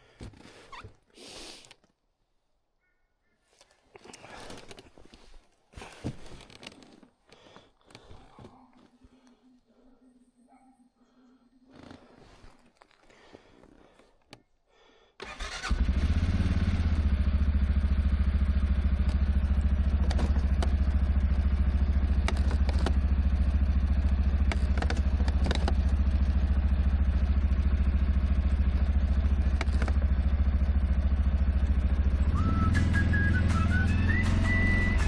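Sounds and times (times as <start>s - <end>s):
atv engine starting and idling: 15.2s - 35.0s.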